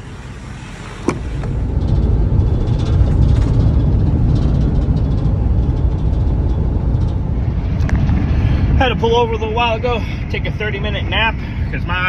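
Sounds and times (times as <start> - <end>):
truck engine and road rumble: 0.0 - 12.0
faint light rattles: 1.1 - 10.4.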